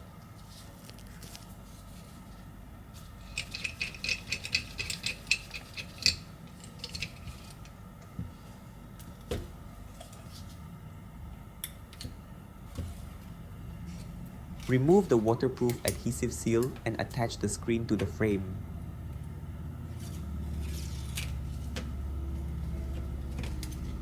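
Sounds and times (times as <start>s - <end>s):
metal repair tools clicking: 3.2s - 7.7s.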